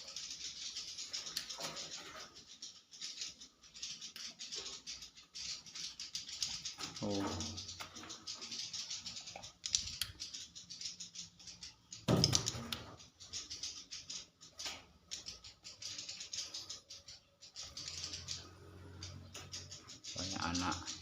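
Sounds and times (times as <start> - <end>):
birds clicking and twittering: 0.0 - 21.0.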